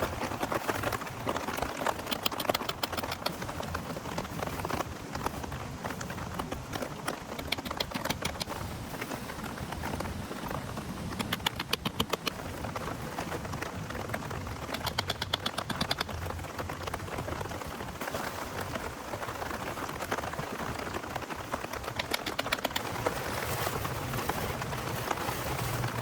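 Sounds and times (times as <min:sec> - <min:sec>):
steady rain: 0:00.0 - 0:26.0
sharp taps: 0:11.1 - 0:12.4.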